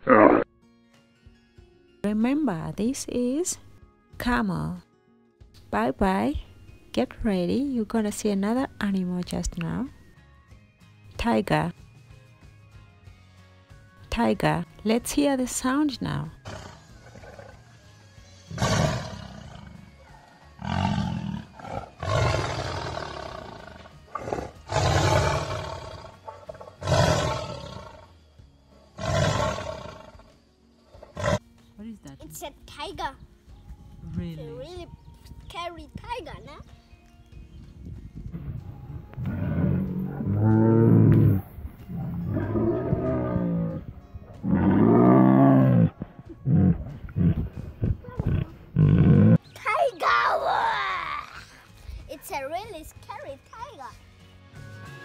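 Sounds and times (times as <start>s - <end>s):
tiger roaring and snarling: 0.0s - 0.4s, 16.4s - 17.7s, 18.5s - 28.2s, 28.9s - 30.3s, 30.9s - 31.4s, 39.1s - 49.4s.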